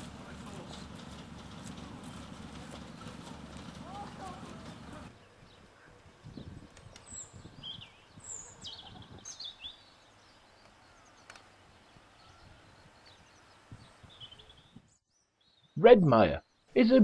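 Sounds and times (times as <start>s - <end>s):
low uneven rumble: 0.0s - 6.6s
birds chirping: 0.0s - 17.0s.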